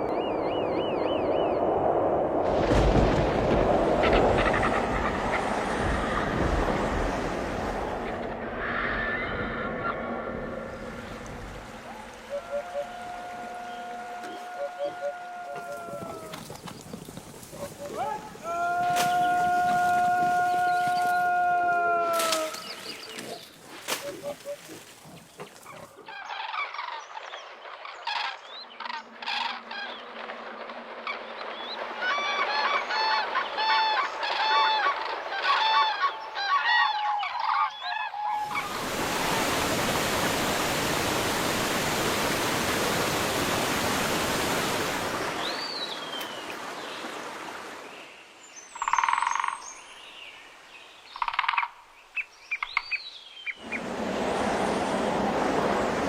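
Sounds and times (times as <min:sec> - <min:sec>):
steady rushing noise: 0:00.3 - 0:12.3, 0:53.6 - 0:56.0.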